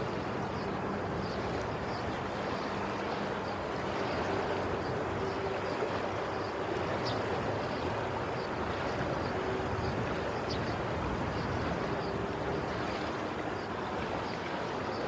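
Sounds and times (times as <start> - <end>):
waves washing: 0.0 - 15.0.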